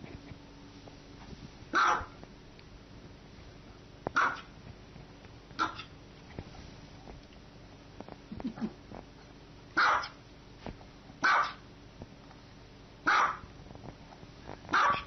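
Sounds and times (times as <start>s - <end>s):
small dog barking: 1.7s - 2.2s, 4.1s - 4.5s, 5.6s - 5.9s, 9.8s - 10.2s, 11.2s - 11.7s, 13.0s - 13.5s, 14.7s - 15.0s.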